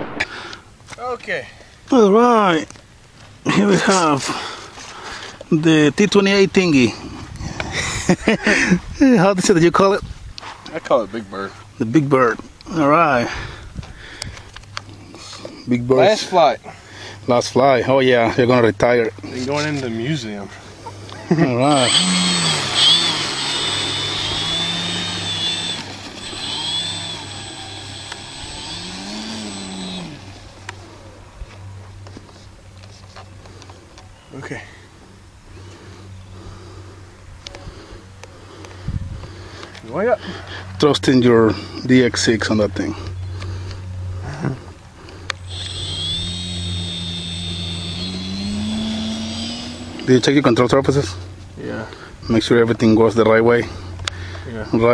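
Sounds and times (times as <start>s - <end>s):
model plane motor revving: 21.6s - 30.5s, 45.4s - 50.6s
high steady whine: 21.7s - 30.8s, 45.4s - 50.5s.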